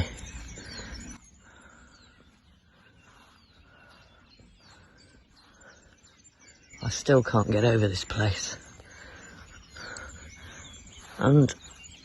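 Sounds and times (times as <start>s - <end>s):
faint birdsong chirps: 0.0s - 12.0s.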